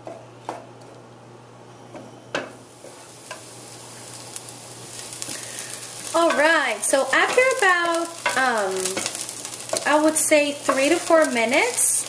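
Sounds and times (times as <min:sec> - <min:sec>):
shallots sizzling in oil: 0:02.5 - 0:12.0
wooden spoon stirring pot: 0:06.0 - 0:11.4.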